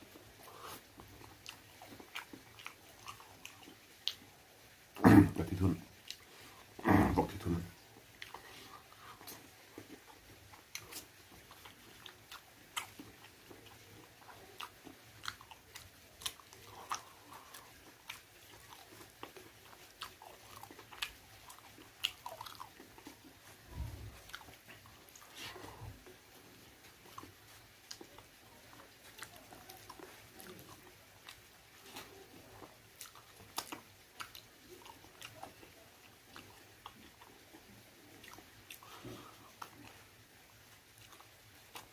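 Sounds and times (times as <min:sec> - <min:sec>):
person chewing and biting: 0:07.4 - 0:28.3, 0:29.0 - 0:40.0.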